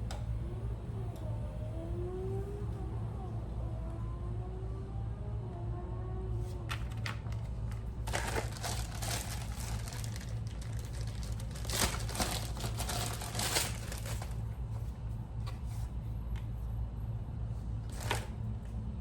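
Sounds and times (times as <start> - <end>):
steady low hum: 0.0 - 19.0
plastic packaging crinkling: 6.7 - 14.4, 17.9 - 18.4.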